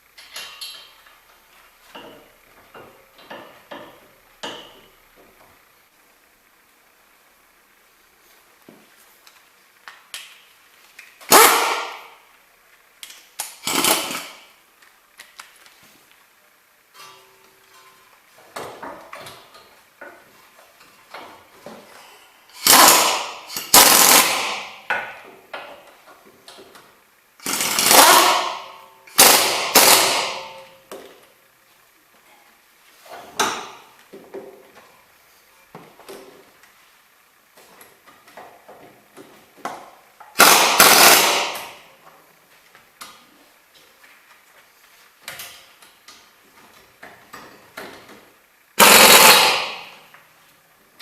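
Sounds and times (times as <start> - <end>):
power tool running: 22.5 - 24.7, 27.4 - 30.6, 40.4 - 41.8, 48.8 - 50.0.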